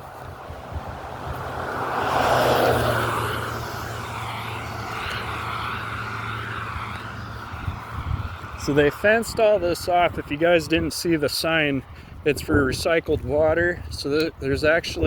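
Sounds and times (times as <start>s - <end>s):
engine passing by: 0.0s - 11.2s.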